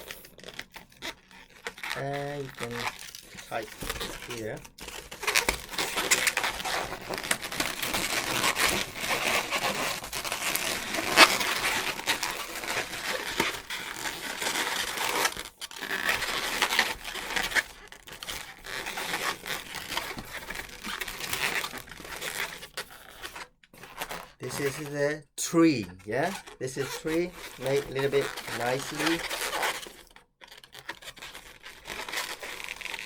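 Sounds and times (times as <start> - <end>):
squeaky balloon rubbing: 0.0 - 33.0
balloon crack: 2.0 - 15.4, 24.0 - 29.9.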